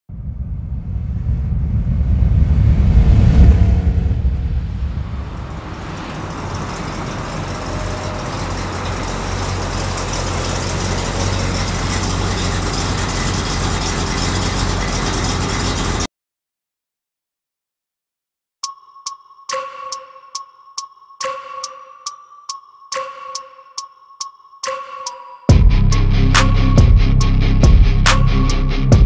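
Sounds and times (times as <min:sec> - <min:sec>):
car engine driving up: 0:00.1 - 0:16.1, 0:25.5 - 0:29.0.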